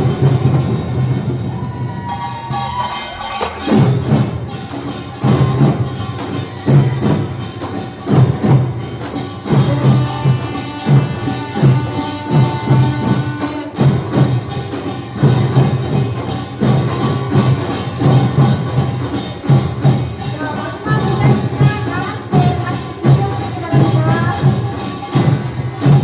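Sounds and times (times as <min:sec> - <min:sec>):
low drum beats: 0:00.0 - 0:26.0
small gongs clanging: 0:02.1 - 0:26.0.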